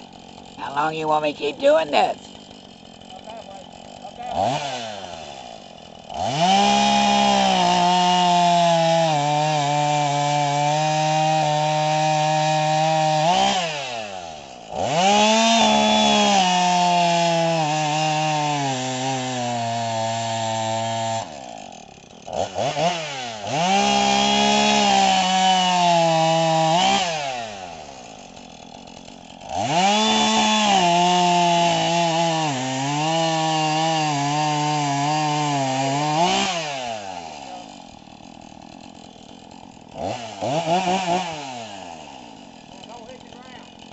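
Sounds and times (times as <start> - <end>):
chainsaw cutting and revving: 0.0 - 43.9.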